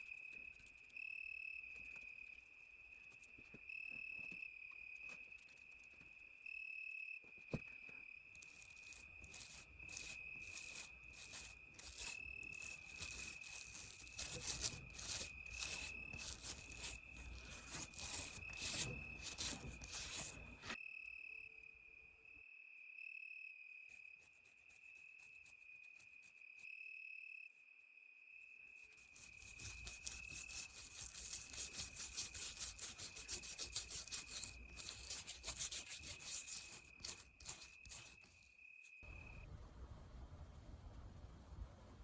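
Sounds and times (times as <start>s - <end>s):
wire brush scraping rust: 8.4s - 20.8s, 28.9s - 38.5s.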